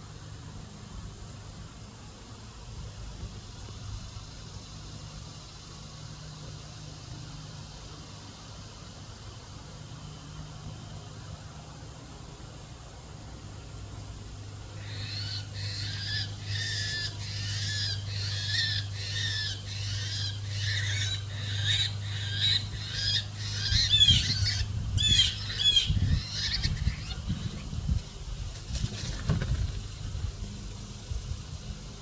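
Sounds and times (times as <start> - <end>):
bird calling: 14.7 - 27.8.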